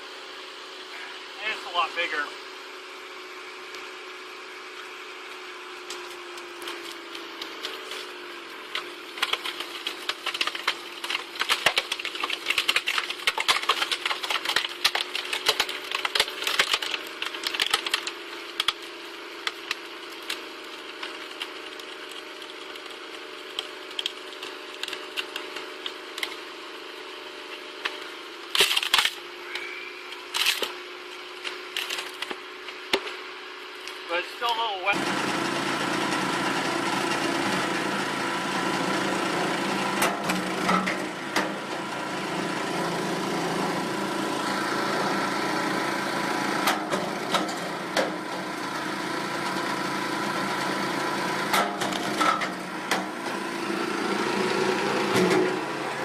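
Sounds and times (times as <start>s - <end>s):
steady engine hum: 0.0s - 56.0s
firewood clattering and cracking: 5.8s - 34.5s.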